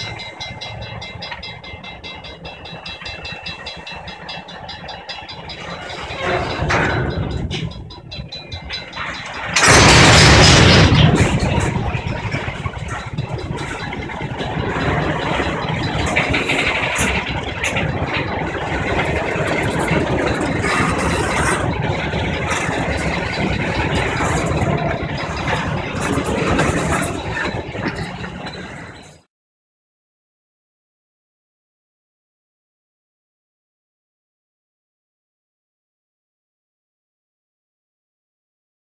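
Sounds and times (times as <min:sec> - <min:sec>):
diesel locomotives running: 0:00.0 - 0:29.3.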